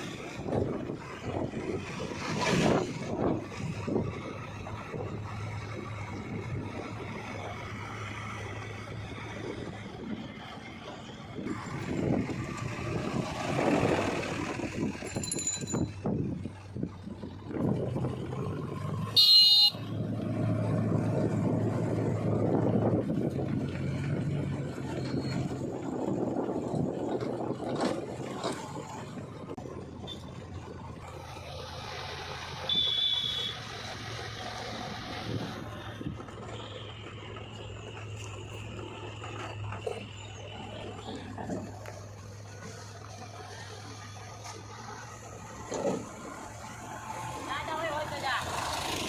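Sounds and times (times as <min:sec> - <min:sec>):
diesel engine running: 0:00.0 - 0:49.0
horn toot: 0:19.2 - 0:19.9, 0:32.7 - 0:33.7.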